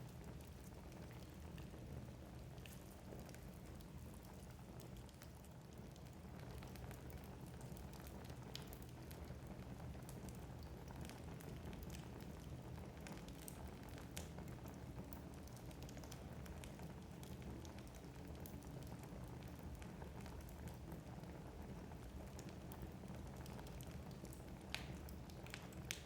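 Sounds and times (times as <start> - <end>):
logs crackling and popping: 0.2 - 9.4, 22.3 - 26.0.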